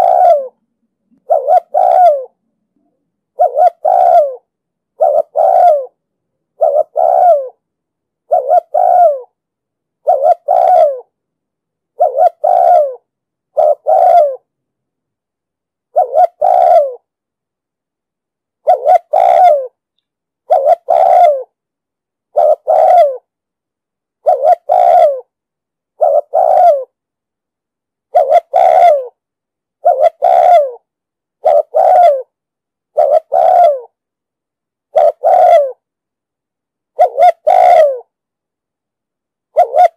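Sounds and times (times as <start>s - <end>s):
dove cooing: 0.0s - 0.6s, 1.2s - 2.4s, 3.3s - 6.0s, 6.6s - 7.6s, 8.3s - 9.4s, 10.0s - 11.1s, 12.0s - 14.5s, 15.9s - 17.1s, 18.6s - 19.8s, 20.4s - 21.6s, 22.3s - 23.3s, 24.2s - 25.3s, 26.0s - 27.0s, 28.1s - 29.2s, 29.8s - 32.3s, 32.9s - 34.0s, 34.9s - 35.8s, 37.0s - 38.1s, 39.5s - 39.9s.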